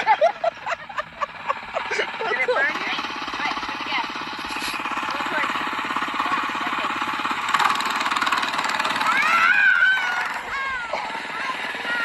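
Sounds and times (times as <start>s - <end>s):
small motorcycle engine running: 0.0s - 12.0s
high wavering cry: 9.0s - 12.0s.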